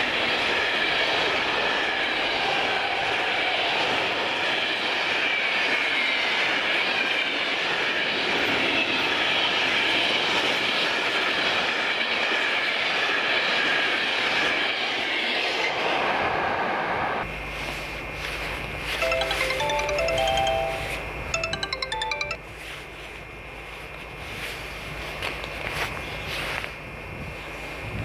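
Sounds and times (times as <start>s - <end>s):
music: 19.0s - 22.4s.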